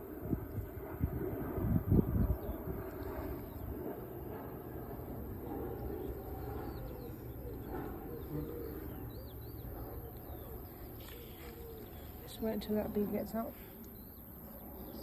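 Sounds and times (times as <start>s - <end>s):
small birds chirping: 5.0s - 15.0s
dove cooing: 5.8s - 12.7s.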